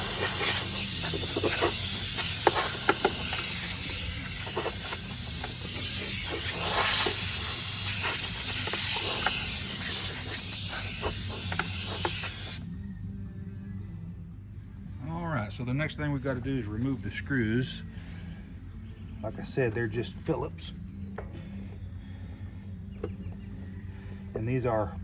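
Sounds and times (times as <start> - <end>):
air blow gun hissing: 0.0 - 12.6.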